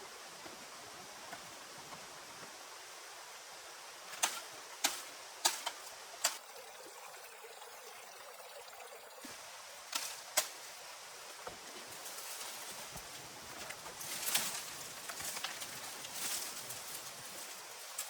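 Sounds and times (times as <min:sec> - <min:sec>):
rain hiss: 0:00.0 - 0:18.0.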